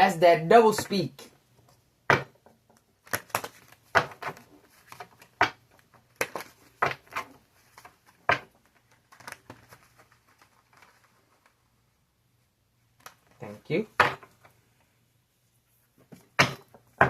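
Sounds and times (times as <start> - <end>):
cards being shuffled: 2.7 - 11.6.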